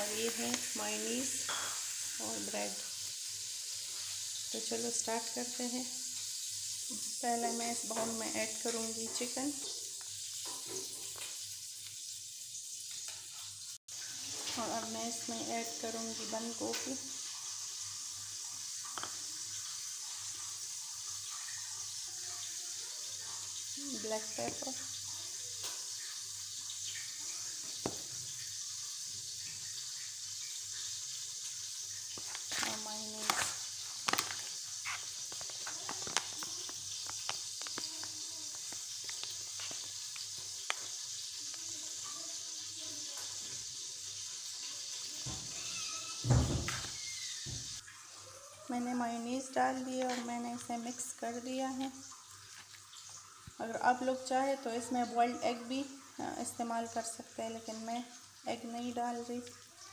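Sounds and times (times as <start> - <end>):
steady hiss: 0.0 - 48.0
spoon stirring wet food: 31.9 - 42.0, 48.8 - 53.6.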